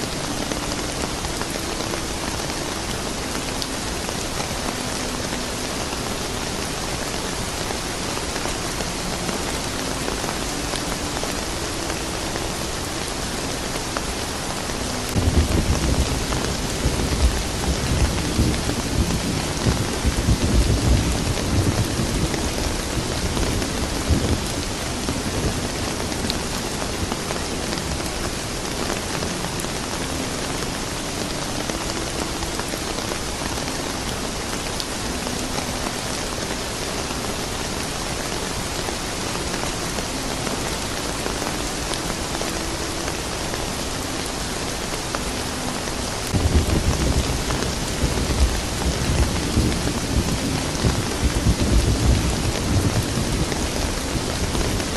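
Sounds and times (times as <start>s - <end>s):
steady rain falling: 0.0s - 54.9s
thunder rumbling: 15.0s - 27.1s, 46.3s - 54.9s.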